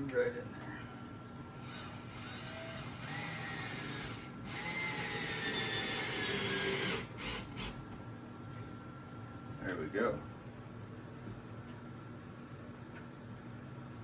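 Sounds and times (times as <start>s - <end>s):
power drill driving a screw: 1.4s - 7.8s.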